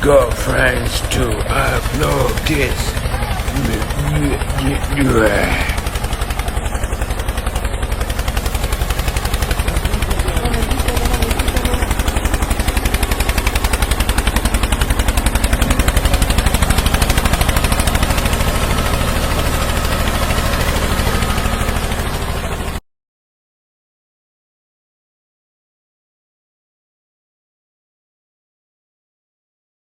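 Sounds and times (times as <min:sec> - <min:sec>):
tractor engine putting: 0:00.0 - 0:22.8.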